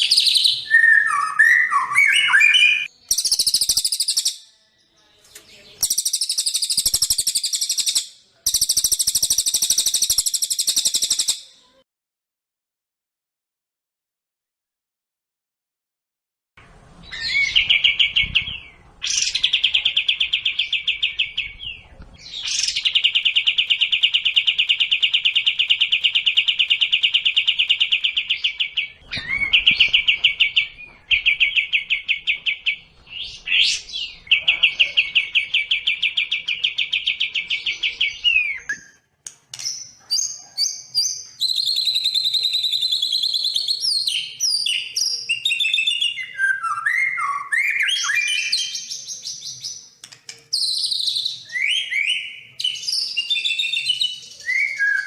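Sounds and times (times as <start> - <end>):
bird chirps and whistles: 0.0 - 4.5, 5.8 - 11.5, 39.7 - 49.3, 50.6 - 55.0
songbirds trilling: 0.0 - 11.4.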